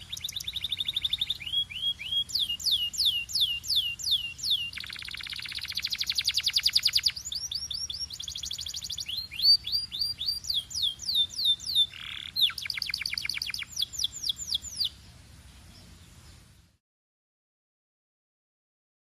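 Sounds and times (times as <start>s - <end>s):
canary singing: 0.0s - 15.0s.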